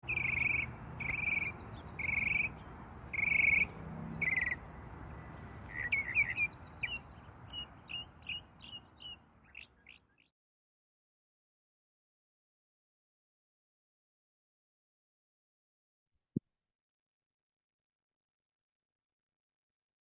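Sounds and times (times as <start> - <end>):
birds trilling and chirping: 0.0 - 10.3.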